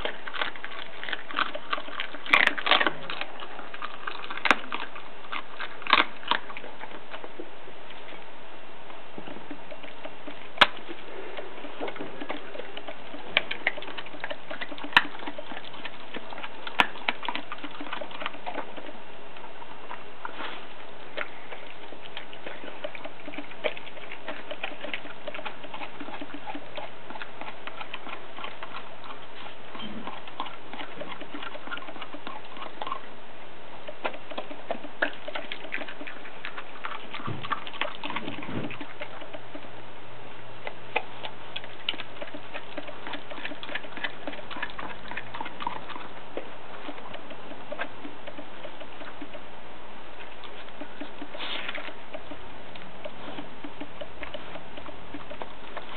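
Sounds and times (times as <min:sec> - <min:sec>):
dog chewing bones: 0:00.0 - 0:08.3, 0:08.9 - 0:55.9.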